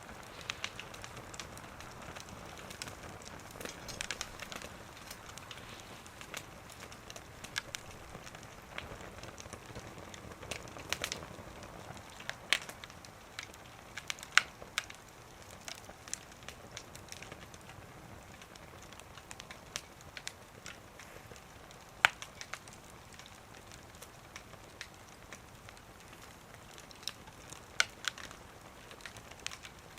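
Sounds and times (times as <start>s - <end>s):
fire hissing: 0.0s - 29.9s
wood fire crackling and popping: 0.0s - 29.9s.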